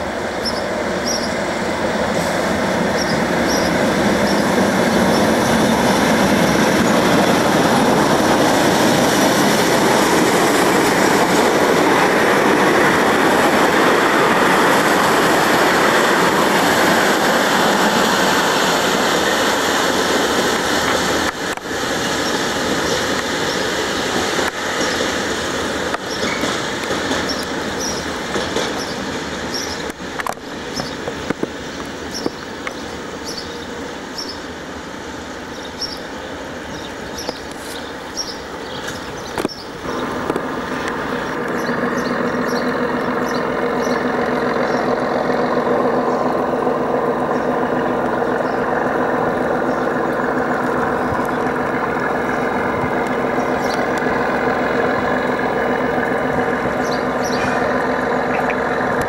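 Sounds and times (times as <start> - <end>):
diesel locomotive passing: 0.0 - 59.0
wagons clattering over rail joints: 25.8 - 32.8, 38.6 - 59.0.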